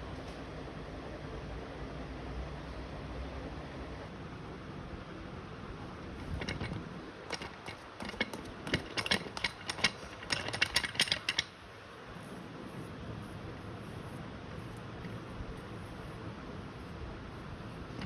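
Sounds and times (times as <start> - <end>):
ceiling fan humming: 0.0 - 18.0
mechanical clicks and rattles: 6.2 - 11.7.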